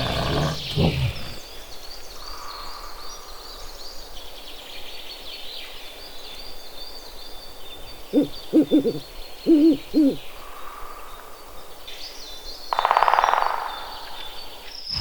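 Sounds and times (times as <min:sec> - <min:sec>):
animal low growl: 0:00.0 - 0:01.5.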